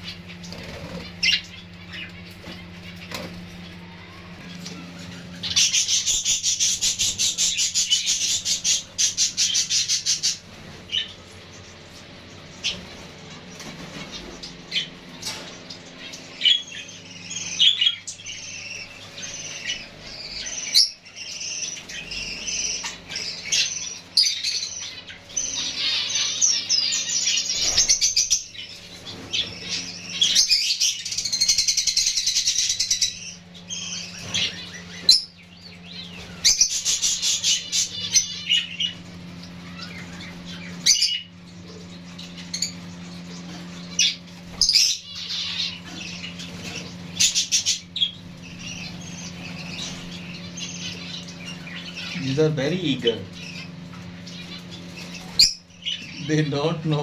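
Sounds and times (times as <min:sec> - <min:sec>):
finches chirping: 0:00.0 - 0:57.0
steady low hum: 0:00.0 - 0:57.0
wing flutters: 0:00.4 - 0:01.4.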